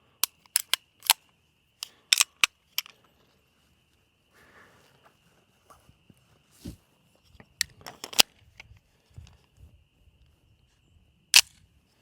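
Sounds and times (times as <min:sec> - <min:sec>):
sharp metallic clicks: 0:00.2 - 0:01.3.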